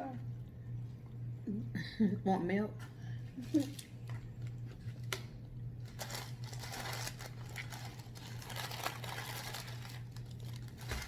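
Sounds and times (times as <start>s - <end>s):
steady low hum: 0.0s - 11.0s
paper wrapper rustling: 3.4s - 11.0s.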